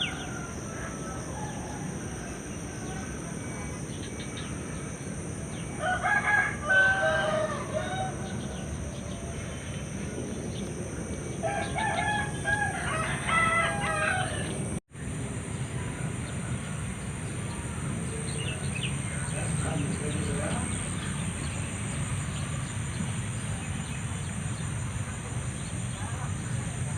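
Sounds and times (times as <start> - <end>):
rooster crowing: 0.0 - 3.6, 5.6 - 9.6, 11.4 - 14.7.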